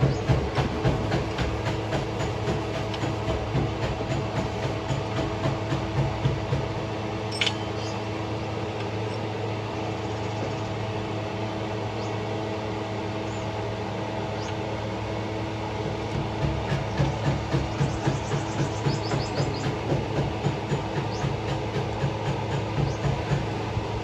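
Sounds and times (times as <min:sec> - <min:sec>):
sharp metallic click: 0:07.3 - 0:08.0.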